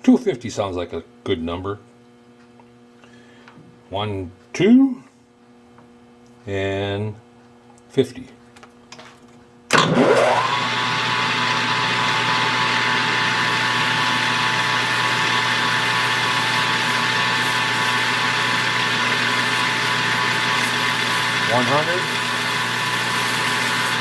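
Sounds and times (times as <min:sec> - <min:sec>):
lathe spindle running: 0:09.7 - 0:24.0.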